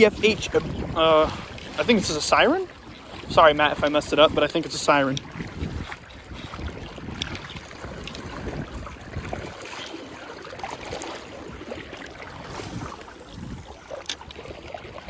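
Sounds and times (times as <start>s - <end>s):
river water flowing and splashing: 0.0s - 15.0s
wind rumbling on microphone: 0.0s - 15.0s
faint high whine: 12.3s - 14.3s.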